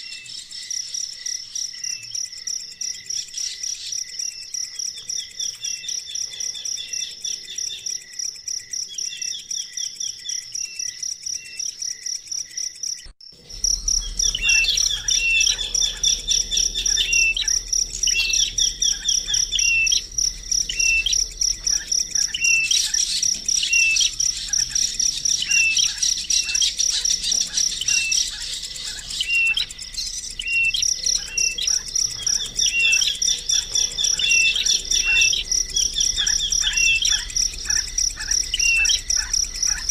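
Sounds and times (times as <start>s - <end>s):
high insect trill: 0.0s - 39.9s
small birds chirping: 0.0s - 39.9s
low rumble: 13.4s - 39.9s.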